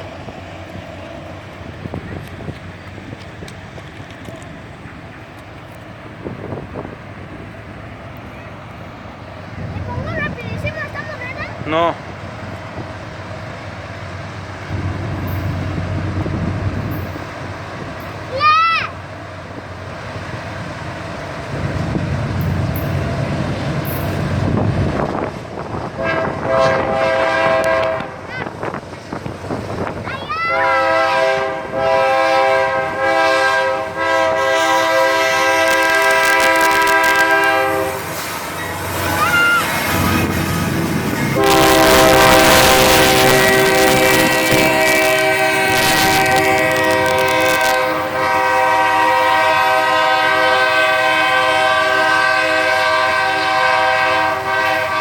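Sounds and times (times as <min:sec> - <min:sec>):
freight train rumbling past: 0:00.0 - 0:55.0
locomotive air horn: 0:25.9 - 0:28.3, 0:30.5 - 0:38.2, 0:39.2 - 0:55.0.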